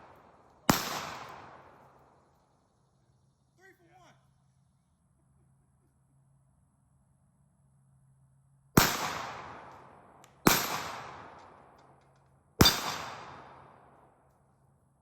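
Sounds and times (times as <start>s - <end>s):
pistol shots with echo: 0.0s - 2.2s, 8.8s - 12.0s, 12.6s - 14.2s.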